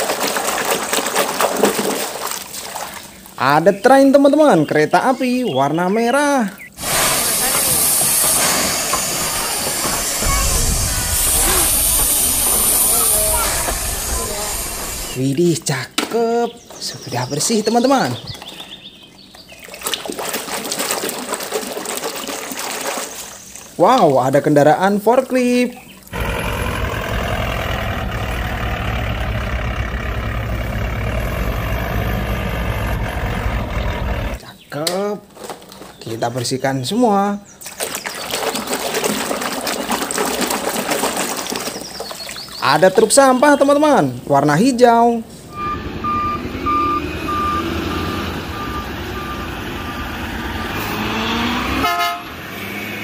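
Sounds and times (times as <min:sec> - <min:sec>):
forklift engine running: 0:06.8 - 0:15.2, 0:26.1 - 0:34.4, 0:45.4 - 0:52.9
reversing alarm beeping: 0:45.5 - 0:51.5.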